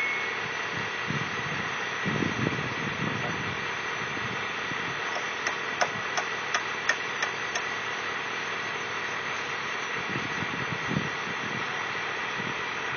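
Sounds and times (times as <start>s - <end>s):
backhoe engine running: 0.0s - 12.9s.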